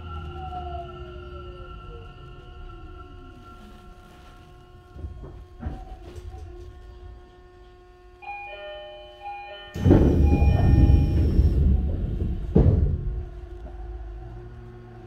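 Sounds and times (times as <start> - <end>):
train rumble: 0.0 - 8.4, 9.3 - 15.0
electronic chime: 8.2 - 11.6
loud thump: 9.8 - 13.3.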